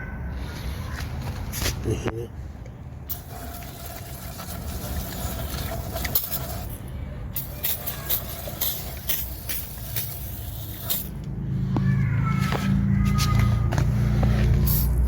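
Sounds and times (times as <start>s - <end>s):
low engine-like rumble: 0.0s - 15.0s
metal clicks and scrapes: 3.1s - 11.4s.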